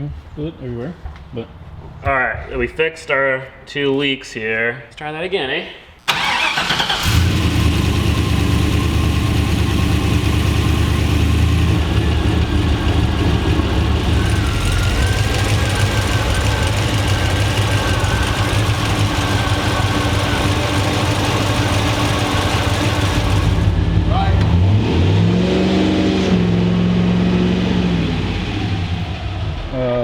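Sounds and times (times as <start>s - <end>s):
engine idling: 6.1s - 24.5s.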